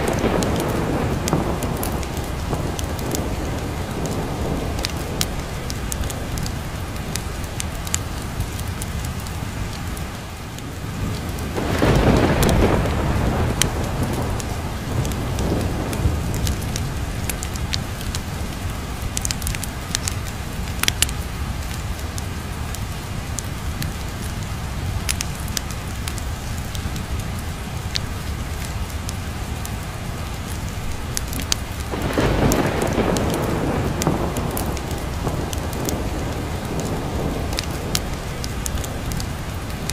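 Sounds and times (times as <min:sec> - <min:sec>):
low rolls of thunder: 0:00.0 - 0:08.5, 0:10.6 - 0:20.0, 0:31.3 - 0:39.9
heavy rain: 0:00.0 - 0:39.9.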